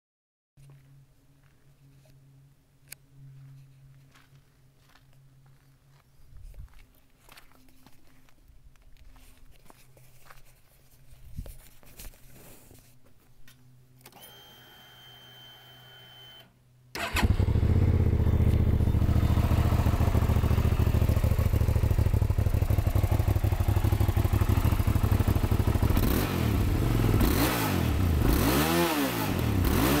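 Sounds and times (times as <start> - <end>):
motorcycle engine starting and idling: 16.9 - 30.0.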